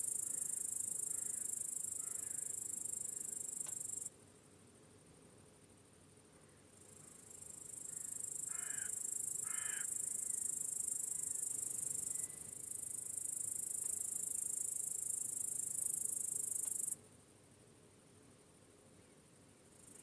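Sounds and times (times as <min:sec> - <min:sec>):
cricket trilling: 0:00.0 - 0:04.1, 0:06.8 - 0:17.0.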